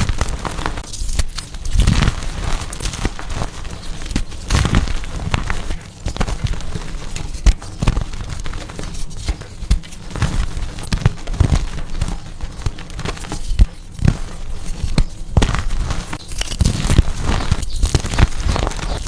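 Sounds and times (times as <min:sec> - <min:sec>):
chalk being crushed: 0:00.0 - 0:19.0.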